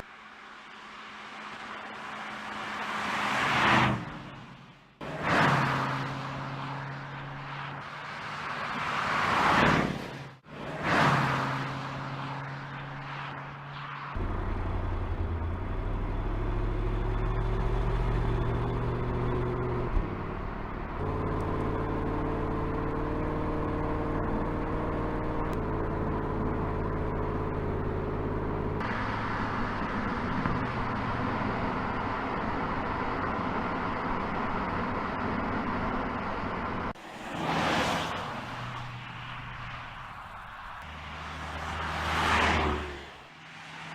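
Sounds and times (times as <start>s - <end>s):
car passing with whoosh: 1.4s - 14.2s, 36.9s - 43.9s.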